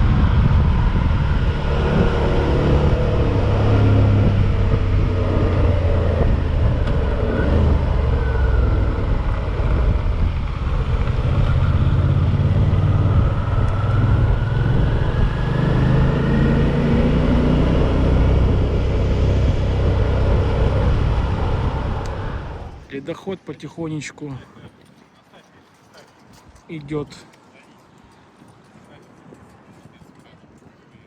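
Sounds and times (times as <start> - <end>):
motorcycle engine running: 0.0 - 22.8
rush of low noise: 0.0 - 22.8.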